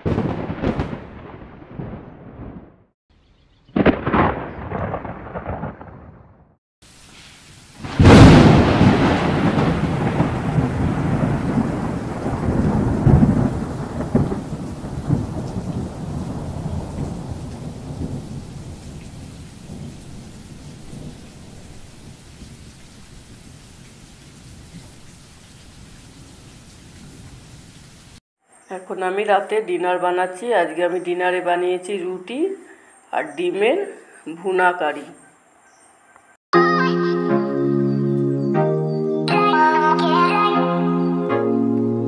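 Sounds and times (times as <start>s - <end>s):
thunderclap with rolling rumble: 0.0s - 2.9s, 3.7s - 6.6s, 7.8s - 23.3s
heavy rain downpour: 6.8s - 28.2s.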